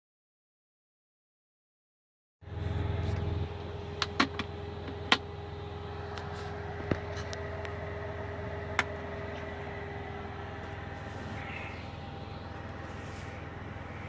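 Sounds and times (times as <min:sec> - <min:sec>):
truck diesel engine humming: 0:02.4 - 0:14.0
sharp clicks and knocks: 0:04.0 - 0:05.3.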